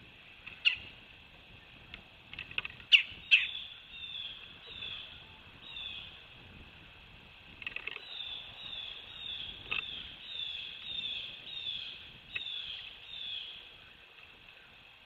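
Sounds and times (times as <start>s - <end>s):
woodpecker calling: 0.5s - 0.9s, 2.3s - 6.2s, 7.6s - 14.0s.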